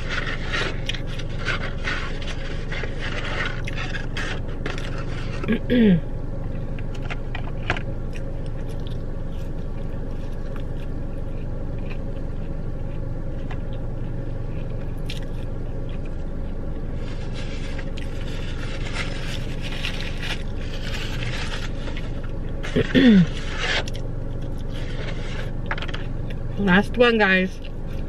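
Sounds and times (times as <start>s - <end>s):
chewing and biting fried food: 0.0s - 5.6s, 6.8s - 26.5s
crunching and rustling: 0.0s - 5.7s, 6.5s - 28.0s
steady low hum: 0.0s - 28.0s.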